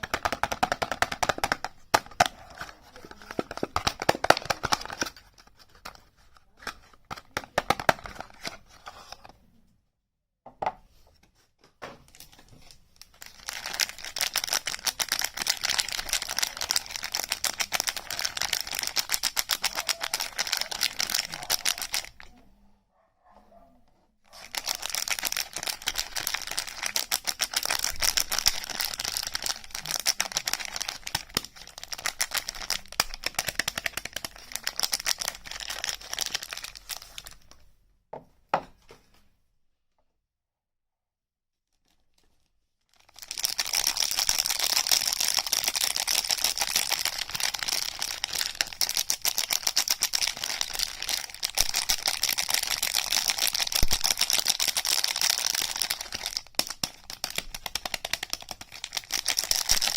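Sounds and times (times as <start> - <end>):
packaging crinkling and tearing: 0.0 - 9.2, 12.1 - 22.3, 24.3 - 37.6, 41.8 - 59.9.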